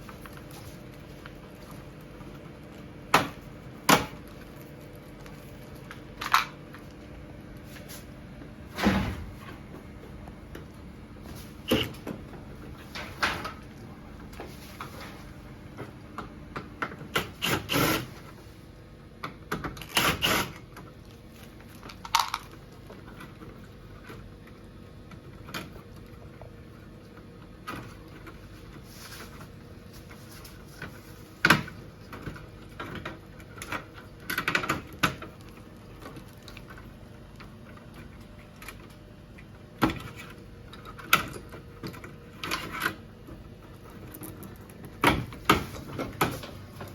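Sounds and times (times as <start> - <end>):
plastic and metal parts clattering: 21.7 - 23.4.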